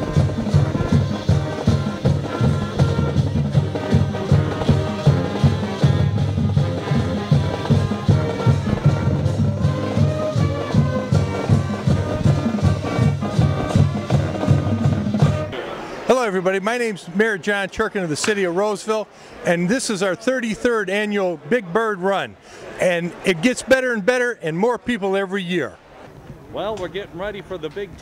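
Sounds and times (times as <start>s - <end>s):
steady drumbeat: 0.0s - 16.2s
brass band playing: 0.0s - 17.4s.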